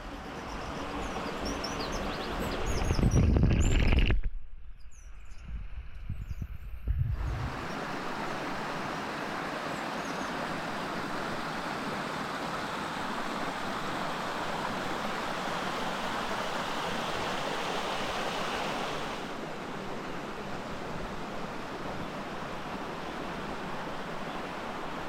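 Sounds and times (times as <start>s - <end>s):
running water rushing: 7.2s - 25.0s.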